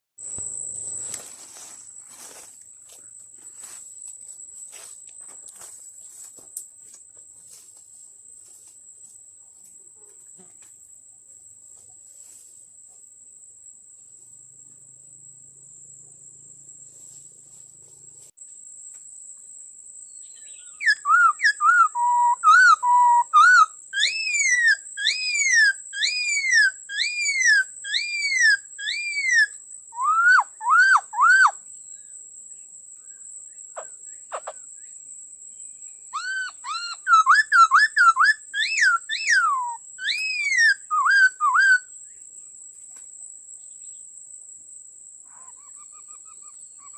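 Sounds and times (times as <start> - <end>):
faint high insect-like whine: 0.2 - 46.9
bird singing whistled phrases: 20.2 - 31.6, 36.2 - 41.9.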